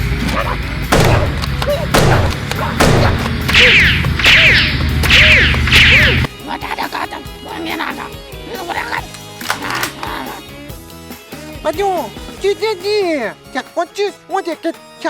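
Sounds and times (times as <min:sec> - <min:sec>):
backing track music: 0:00.6 - 0:15.0
bright zaps: 0:02.0 - 0:06.3
cartoon falling whooshes: 0:03.5 - 0:06.3.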